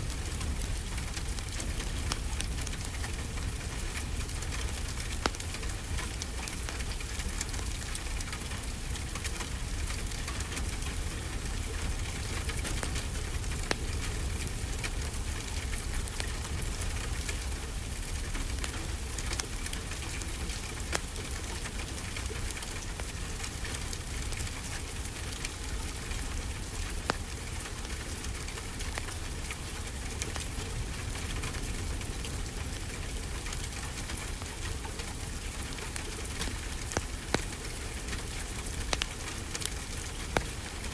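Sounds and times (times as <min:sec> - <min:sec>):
crackling wood fire: 0:00.0 - 0:40.9
steady rainfall: 0:00.0 - 0:40.9
fire popping: 0:00.2 - 0:20.1, 0:33.5 - 0:40.9.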